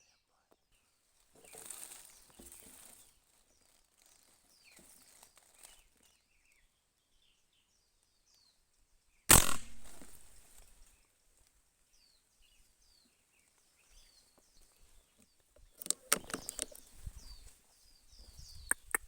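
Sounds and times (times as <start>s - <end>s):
small birds chirping: 0.0s - 19.0s
loud gunshot: 9.3s - 10.4s.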